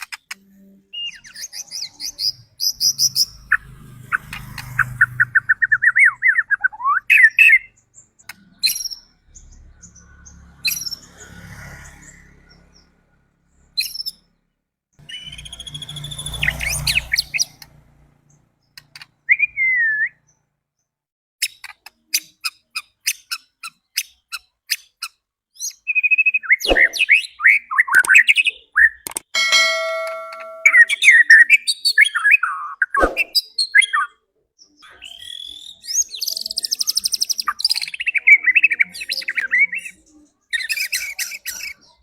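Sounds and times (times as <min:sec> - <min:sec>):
sharp ticking bird calls: 0:00.0 - 0:11.2, 0:13.8 - 0:14.2, 0:15.0 - 0:20.4, 0:21.4 - 0:42.0
bird singing whistled phrases: 0:00.9 - 0:03.3, 0:05.6 - 0:07.8, 0:15.1 - 0:17.0, 0:19.3 - 0:20.2, 0:34.8 - 0:40.0.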